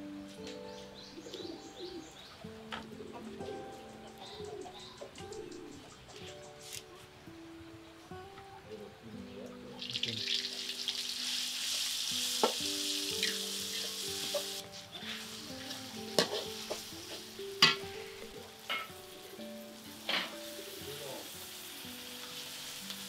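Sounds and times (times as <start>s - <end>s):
food sizzling in a wok: 9.8s - 23.0s
metal spatula scraping pan: 15.0s - 16.7s.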